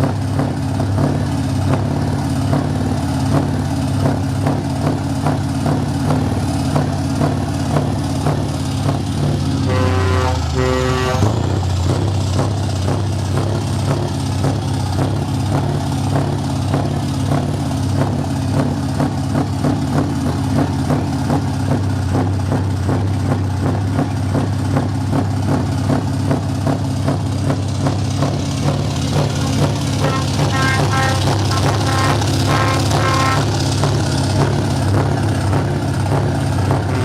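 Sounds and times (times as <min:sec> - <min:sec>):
truck engine deep rumble: 0:00.0 - 0:37.0
horn-like tone: 0:09.6 - 0:12.1, 0:29.1 - 0:34.6.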